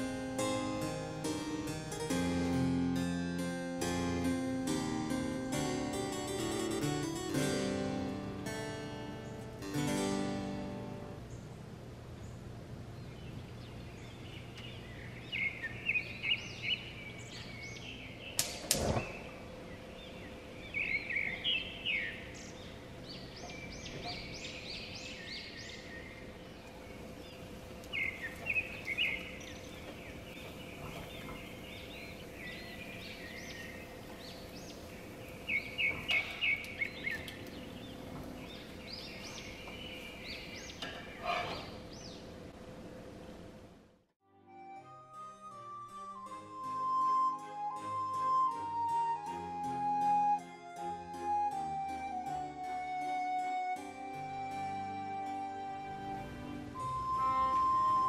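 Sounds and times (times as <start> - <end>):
bird chirping: 4.2 - 42.4.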